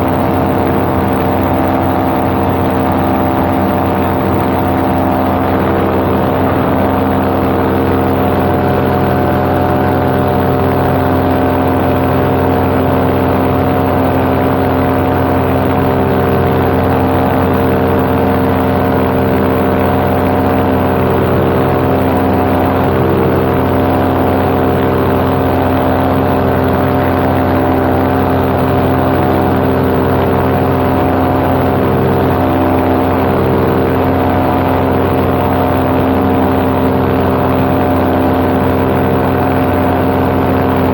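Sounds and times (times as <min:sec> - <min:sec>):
paramotor engine and propeller: 0:00.0 - 0:40.9.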